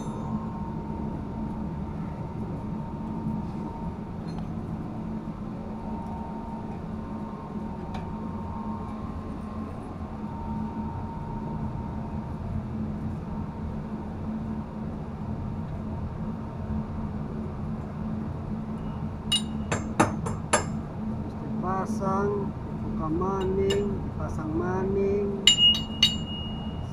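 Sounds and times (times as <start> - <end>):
low machinery drone with whine: 0.0 - 26.9.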